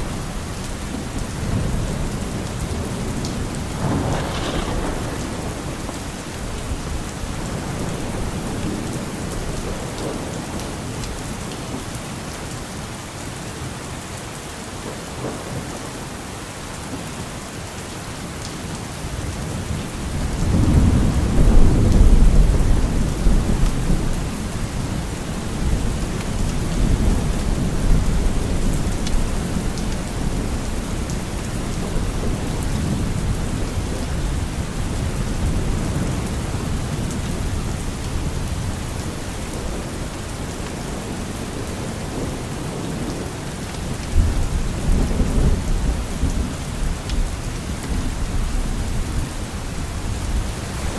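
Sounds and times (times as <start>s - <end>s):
rolling thunder: 0.0s - 10.5s, 19.7s - 49.3s
steady rain falling: 0.0s - 50.9s.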